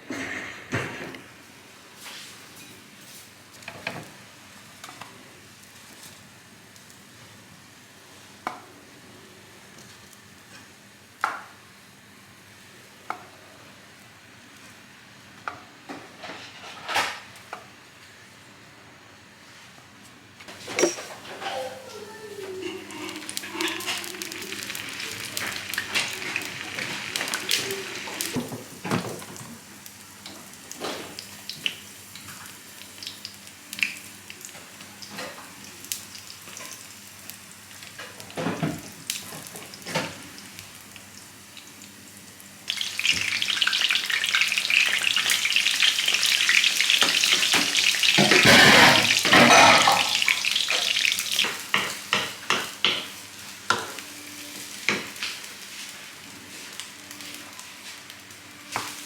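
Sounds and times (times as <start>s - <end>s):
frying sizzle: 0.0s - 59.0s
kitchen utensils clicking: 20.6s - 21.7s, 22.6s - 28.3s, 48.2s - 50.8s.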